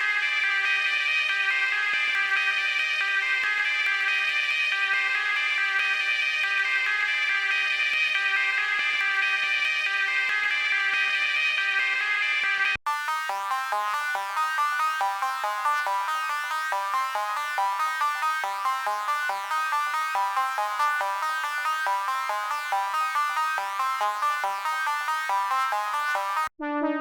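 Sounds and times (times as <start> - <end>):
synthesizer plucked arpeggio: 12.9 - 26.5.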